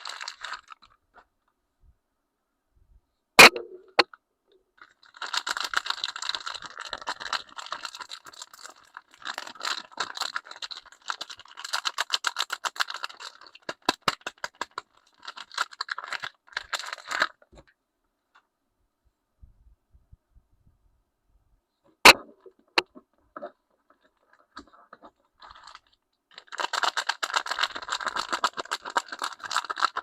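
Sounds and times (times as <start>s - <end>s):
packaging crinkling: 0.0s - 1.0s, 4.8s - 17.5s, 22.1s - 30.0s.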